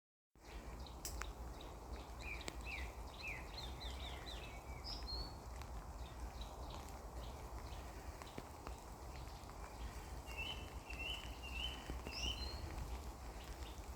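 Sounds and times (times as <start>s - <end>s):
songbird whistled song: 0.4s - 5.4s, 10.2s - 12.8s.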